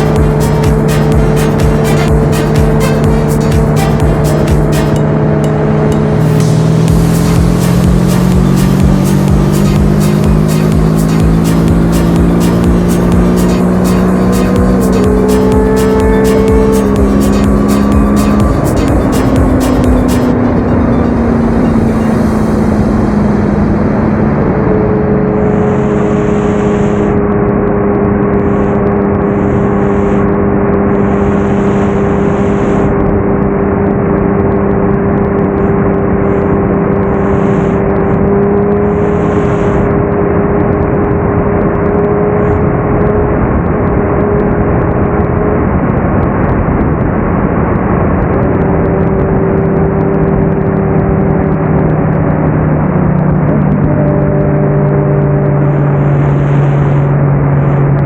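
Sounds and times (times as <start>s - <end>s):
rushing noise: 0.0s - 54.3s
motorcycle engine running: 0.0s - 58.0s.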